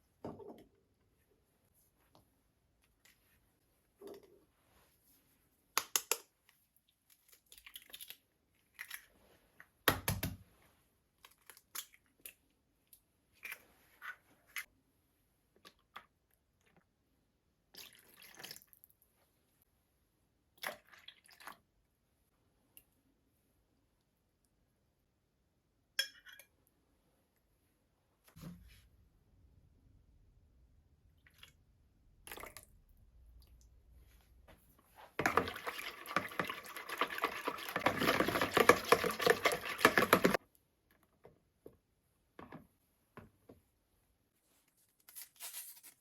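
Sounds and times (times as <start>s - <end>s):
liquid pouring: 35.2s - 40.4s.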